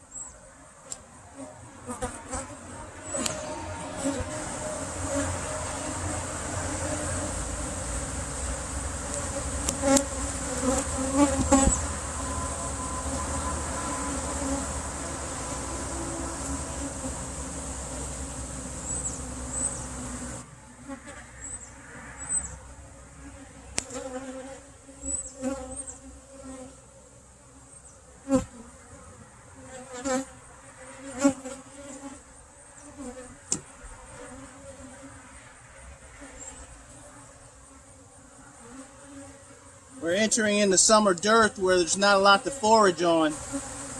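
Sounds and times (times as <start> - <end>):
steady background noise: 0.0 - 23.9
honey bees buzzing: 0.0 - 43.9.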